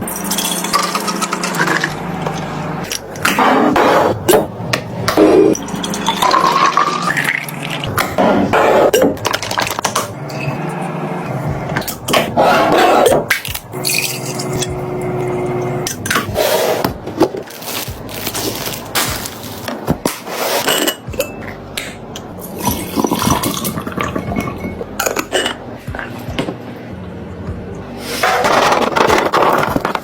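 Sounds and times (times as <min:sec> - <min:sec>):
containers and jars clinking: 0:05.1 - 0:08.1, 0:13.0 - 0:16.3, 0:22.4 - 0:25.6.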